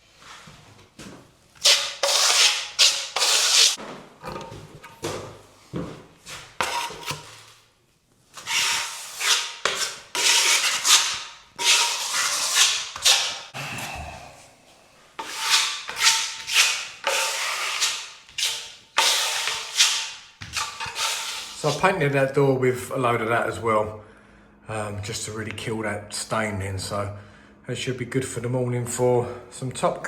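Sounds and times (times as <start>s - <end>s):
filling knife scraping plaster wall: 1.6s - 3.8s, 6.6s - 7.5s, 8.4s - 13.6s, 15.2s - 21.9s.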